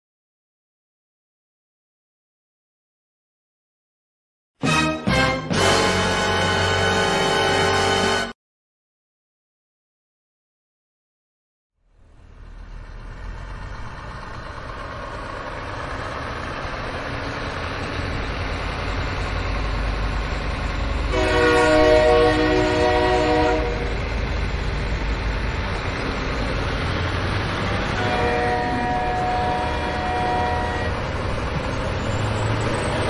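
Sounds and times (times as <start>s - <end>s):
horn sounding: 4.6s - 8.4s, 21.1s - 24.0s, 27.8s - 31.2s.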